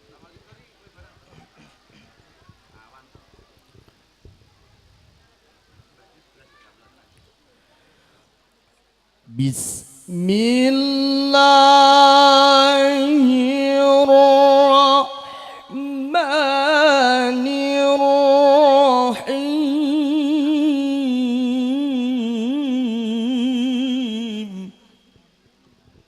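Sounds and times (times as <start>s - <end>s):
man chanting recitation: 9.3s - 25.0s.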